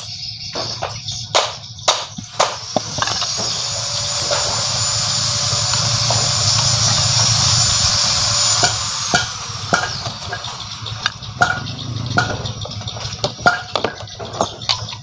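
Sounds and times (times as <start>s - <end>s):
metal tools and parts clinking: 0.1s - 7.8s, 8.5s - 15.0s
steady hiss: 2.3s - 13.3s.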